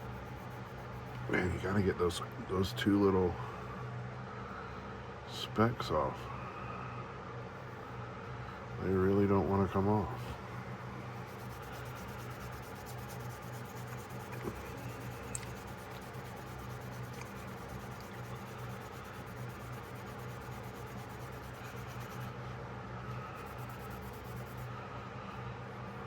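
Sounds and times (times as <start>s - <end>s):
low steady hum: 0.0s - 26.0s
scratching on a knife blade: 11.2s - 22.3s, 23.3s - 24.7s.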